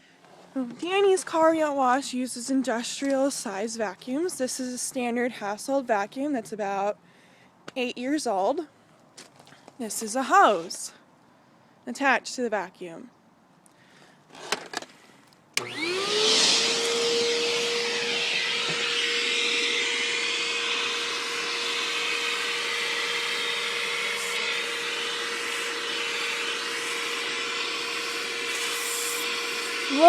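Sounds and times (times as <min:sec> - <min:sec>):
vacuum cleaner running: 0:15.6 - 0:30.0.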